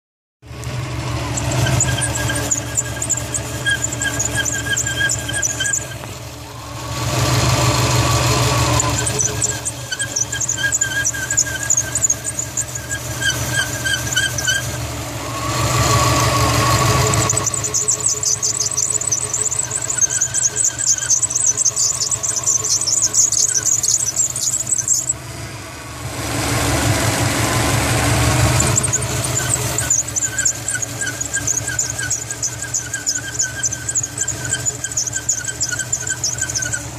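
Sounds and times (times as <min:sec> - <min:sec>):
car engine running: 0:00.4 - 0:36.9
belt squealing: 0:00.6 - 0:25.2, 0:27.4 - 0:36.9.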